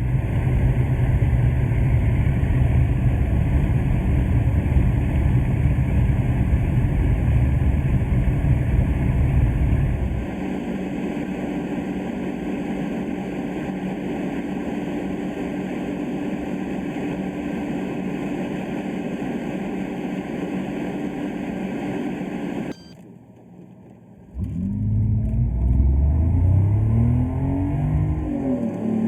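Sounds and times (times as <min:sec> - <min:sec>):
road and wind noise: 0:00.0 - 0:10.4
car engine cruising: 0:00.0 - 0:22.6, 0:23.3 - 0:29.0
engine accelerating hard: 0:00.0 - 0:22.6, 0:24.3 - 0:29.0
low hum: 0:00.0 - 0:28.4.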